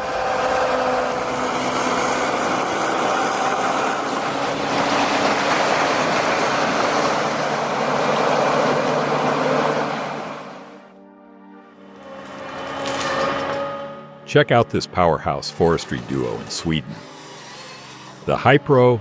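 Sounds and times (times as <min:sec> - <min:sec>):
tractor engine running under load: 0:00.0 - 0:10.9.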